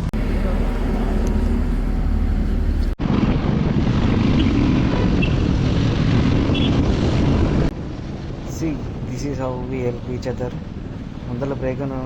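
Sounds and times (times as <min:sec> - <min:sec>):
motorcycle engine: 0:00.0 - 0:03.0
wind buffeting microphone: 0:00.0 - 0:12.0.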